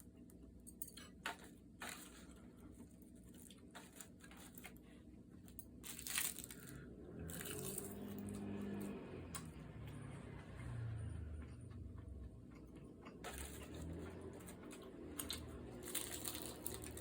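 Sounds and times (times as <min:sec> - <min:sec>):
chewing and biting: 0:05.9 - 0:08.8
loud crunch: 0:13.0 - 0:17.0.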